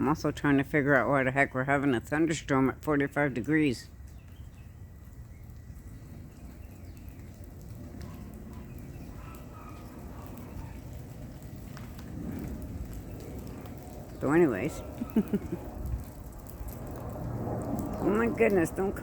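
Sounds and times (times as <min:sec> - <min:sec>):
low distant rumble: 0:03.9 - 0:19.0.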